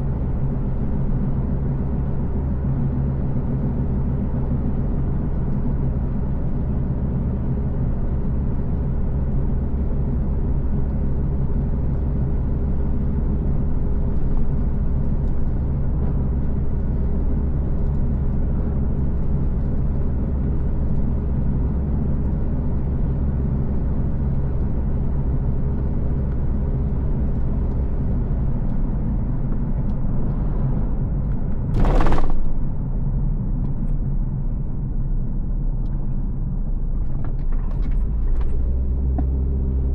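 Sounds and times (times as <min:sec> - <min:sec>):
car engine and road rumble: 0:00.0 - 0:39.9
loud rush of noise: 0:31.8 - 0:32.8.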